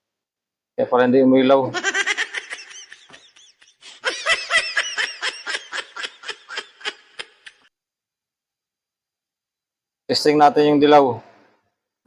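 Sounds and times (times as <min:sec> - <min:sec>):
man laughing: 0:01.7 - 0:07.7.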